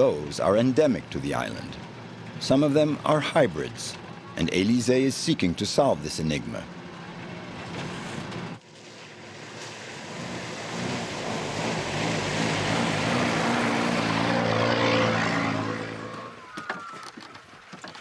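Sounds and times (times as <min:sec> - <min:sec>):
vehicle engine passing by: 0:07.1 - 0:16.5.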